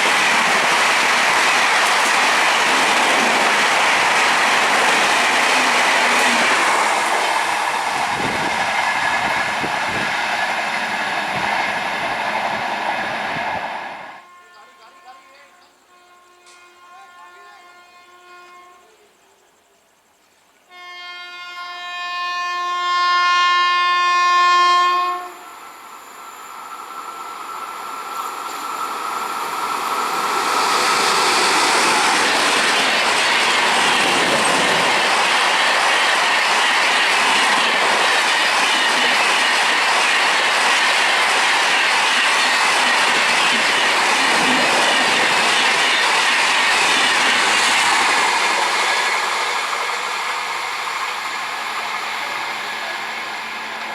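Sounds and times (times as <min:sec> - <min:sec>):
train wheels rushing on rail: 0:00.0 - 0:14.2, 0:22.8 - 0:53.9
train horn blast: 0:14.2 - 0:19.0, 0:20.7 - 0:25.5.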